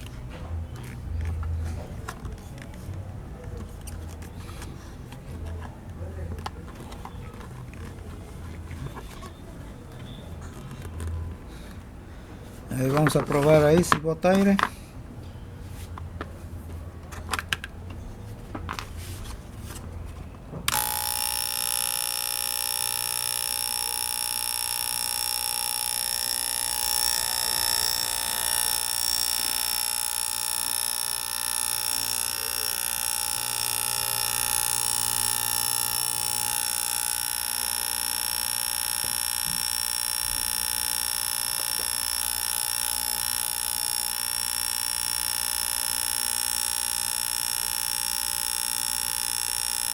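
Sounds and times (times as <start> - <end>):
electric air pump buzzing: 20.7 - 49.9.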